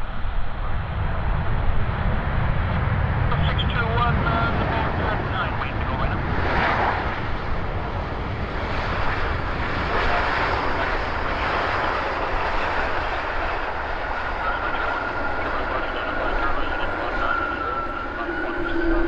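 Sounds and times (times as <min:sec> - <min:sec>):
jet engines rumbling: 0:00.0 - 0:19.0
thin high whine: 0:17.0 - 0:19.0.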